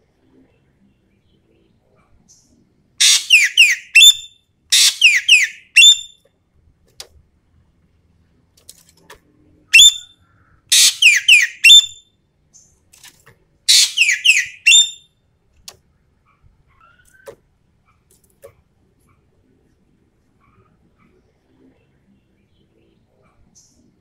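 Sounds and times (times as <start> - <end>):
magpie harsh calls: 3.0 - 6.1, 9.8 - 10.1, 10.7 - 12.0, 13.7 - 15.0.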